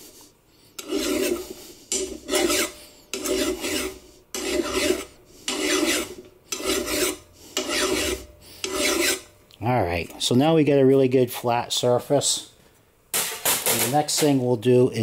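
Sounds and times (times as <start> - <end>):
hand file rasping on steel: 0.8 - 9.3.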